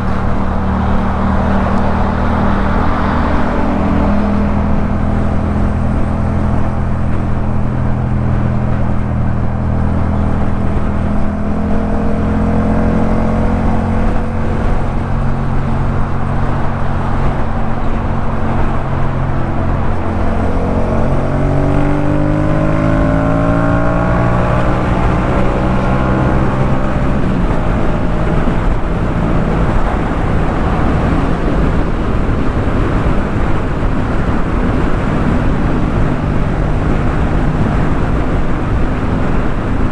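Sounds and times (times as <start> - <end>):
constant rush of noise: 0.0 - 39.9.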